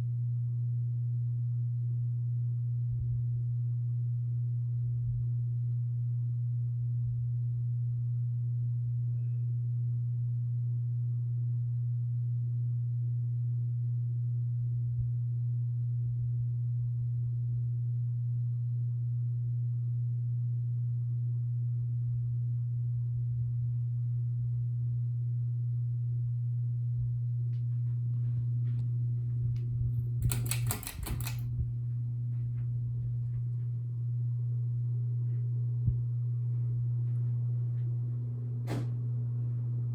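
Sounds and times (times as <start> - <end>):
ceiling fan motor hum: 23.0 - 39.9.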